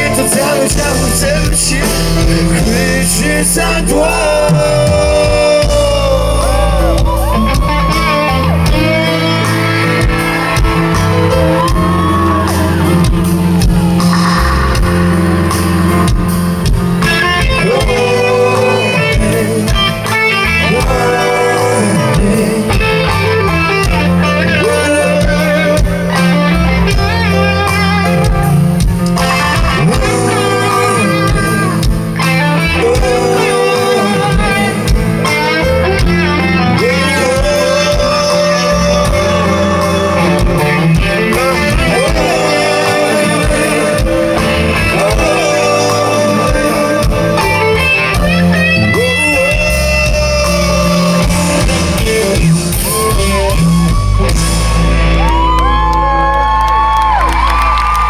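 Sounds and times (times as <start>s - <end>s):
guitar melody: 0.0s - 58.0s
reggae band playing: 0.0s - 58.0s.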